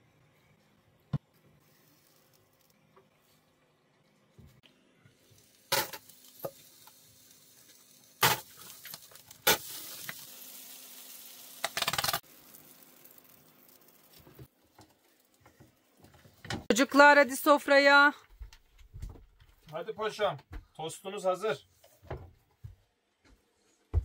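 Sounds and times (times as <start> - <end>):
food sizzling in a pan: 1.6 - 3.4, 5.0 - 16.5.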